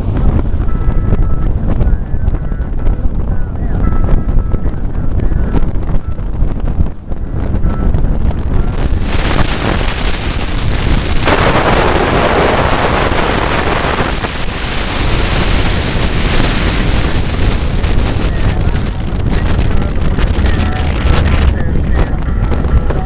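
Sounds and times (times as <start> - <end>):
moving car rumble: 0.0 - 23.0
wind rushing over microphone: 0.0 - 23.0
surge of noise: 8.2 - 23.0.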